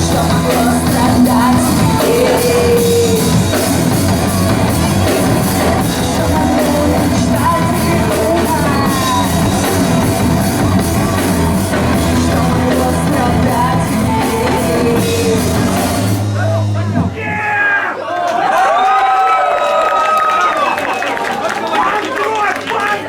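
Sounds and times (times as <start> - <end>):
person singing: 0.0 - 17.2
rock band playing live: 0.0 - 17.4.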